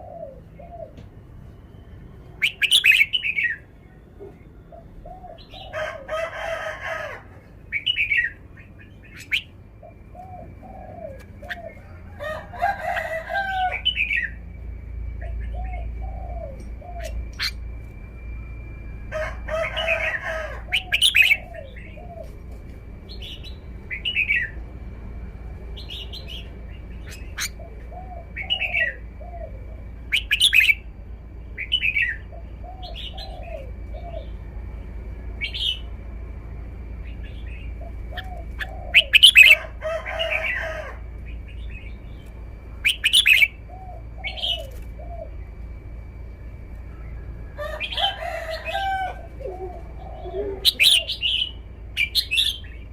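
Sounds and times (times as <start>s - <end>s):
lower bird calls: 0.0s - 6.1s, 7.4s - 24.7s, 25.7s - 52.9s
bulbul singing bright phrases: 1.7s - 4.1s, 7.6s - 11.8s, 13.7s - 18.8s, 25.8s - 34.5s, 41.3s - 45.5s, 49.8s - 52.9s
faint steady high tone: 7.4s - 39.5s.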